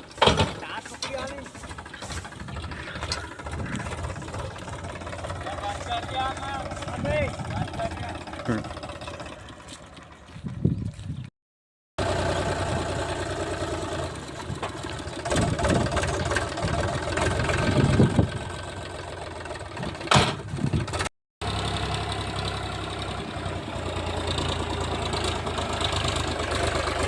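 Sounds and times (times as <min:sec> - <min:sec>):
tractor diesel engine running: 0:00.0 - 0:11.2, 0:12.0 - 0:27.0
loud knocks and clatters: 0:00.2 - 0:02.6.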